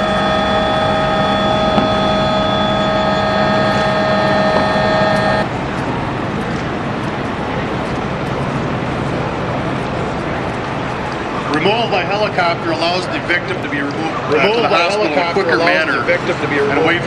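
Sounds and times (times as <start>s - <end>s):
machinery multi-tone whine: 0.0s - 12.5s
machinery rumble: 0.0s - 14.3s.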